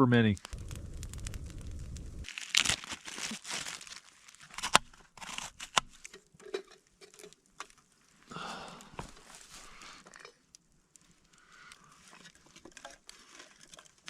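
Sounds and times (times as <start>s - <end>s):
rustling and crinkling: 0.3s - 14.0s.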